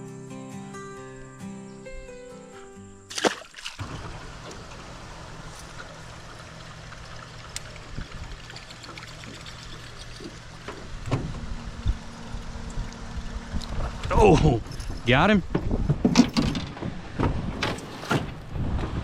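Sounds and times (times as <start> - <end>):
water trickling and gurgling: 3.1 - 14.2
steady low hum: 3.8 - 16.0.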